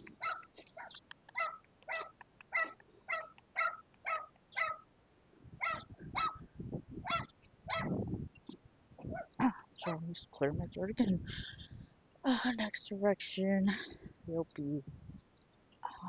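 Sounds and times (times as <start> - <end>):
dog yapping: 0.2 - 4.8, 5.6 - 6.4, 7.0 - 8.0.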